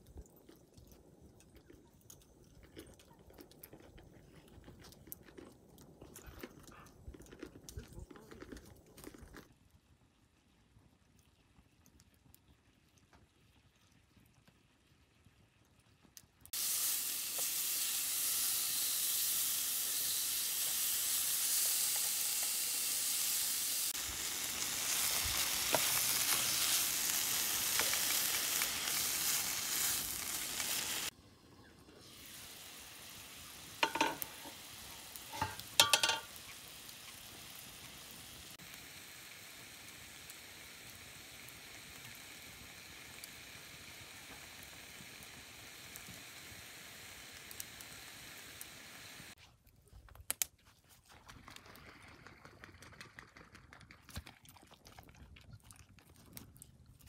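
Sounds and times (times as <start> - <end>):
food sizzling in a frying pan: 16.5 - 31.2, 32.0 - 49.4.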